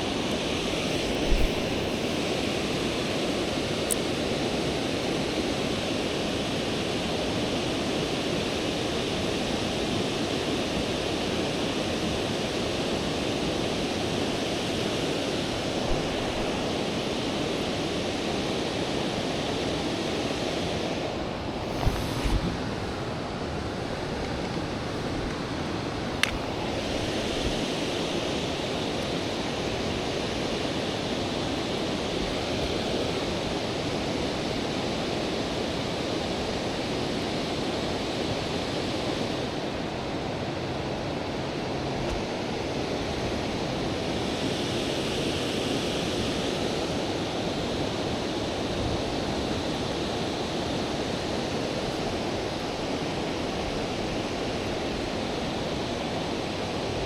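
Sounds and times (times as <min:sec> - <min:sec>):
river water rushing over rocks: 0:00.0 - 0:42.5.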